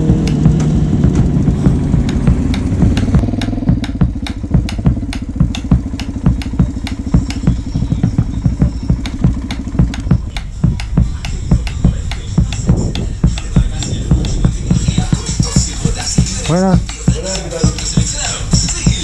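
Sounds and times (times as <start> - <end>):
motorcycle engine running: 0.0 - 19.0
music with a steady beat: 0.0 - 19.0.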